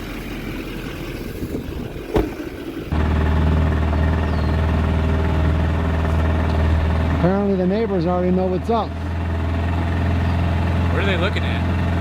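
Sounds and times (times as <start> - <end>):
engine idling: 0.0 - 12.0
outdoor background noise: 0.0 - 12.0
single knock: 2.1 - 2.4.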